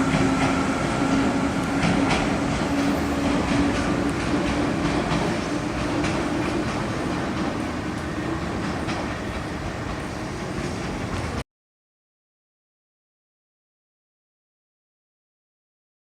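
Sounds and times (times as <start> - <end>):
train running rumble: 0.0 - 11.4
wheels clicking over rail joints: 0.0 - 11.4.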